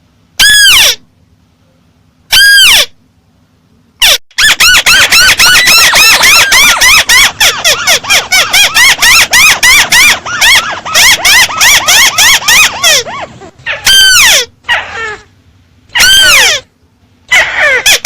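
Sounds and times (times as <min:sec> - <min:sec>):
bird calling sharp notes: 0:02.3 - 0:03.0, 0:04.0 - 0:14.5.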